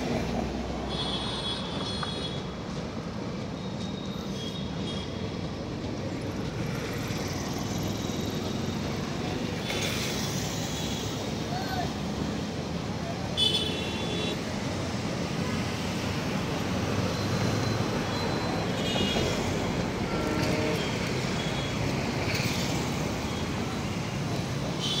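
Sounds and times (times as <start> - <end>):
road traffic: 0.0 - 25.0
train coaches rumbling past: 14.5 - 24.7.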